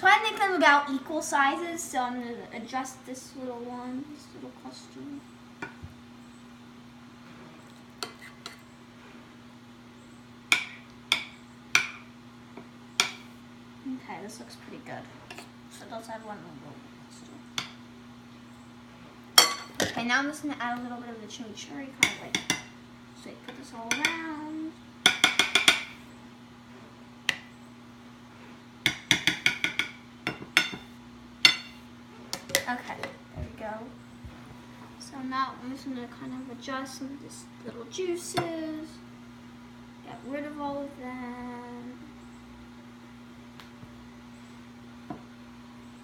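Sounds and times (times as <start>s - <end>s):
steady low hum: 0.0s - 46.0s
spoon clinking against a dish: 31.5s - 31.8s.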